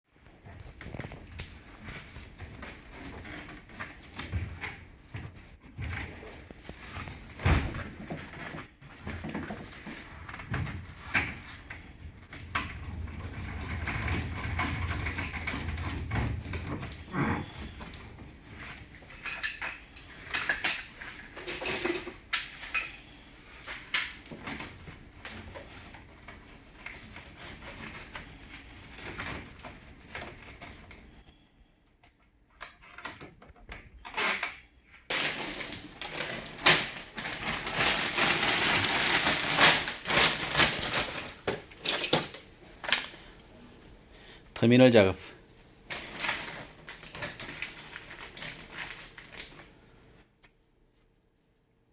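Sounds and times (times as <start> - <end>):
tools and hardware clattering: 18.6 - 24.7, 35.1 - 43.1.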